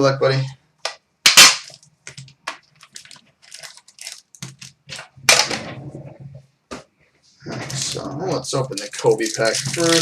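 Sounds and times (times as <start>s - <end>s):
packaging crinkling and crackling: 1.6s - 5.5s, 7.7s - 10.0s.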